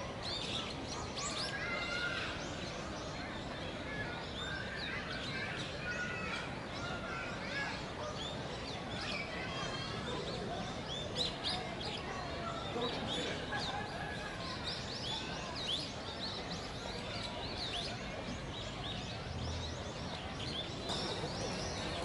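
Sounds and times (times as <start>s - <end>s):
birds chirping and calling: 18.8s - 22.0s.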